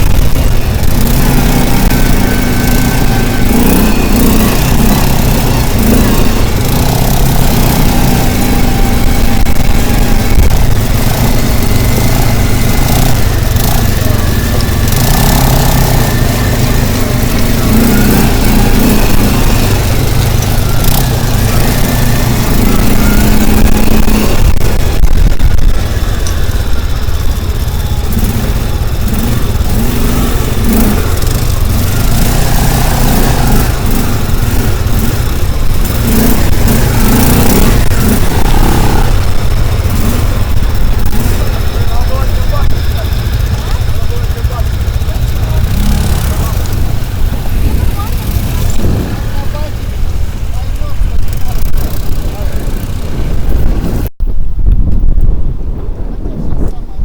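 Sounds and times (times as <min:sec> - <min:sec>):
loud vehicle engine running: 0:00.0 - 0:57.0.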